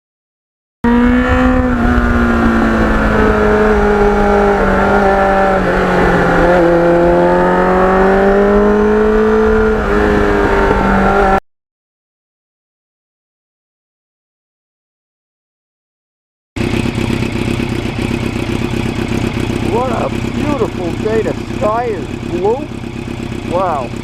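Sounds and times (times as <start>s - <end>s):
motorcycle engine running: 0.8s - 11.4s, 16.6s - 24.0s
low rumble: 0.9s - 8.7s.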